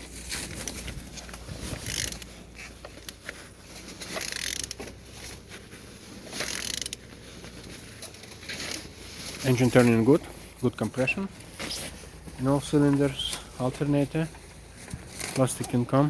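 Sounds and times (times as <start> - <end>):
wrench ratcheting and clicking: 1.7 - 2.3, 4.1 - 4.8, 6.4 - 7.0.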